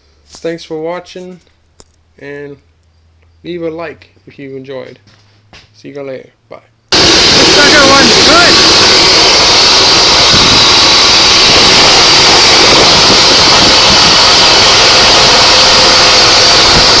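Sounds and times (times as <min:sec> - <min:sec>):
auger engine running: 0:06.9 - 0:17.0.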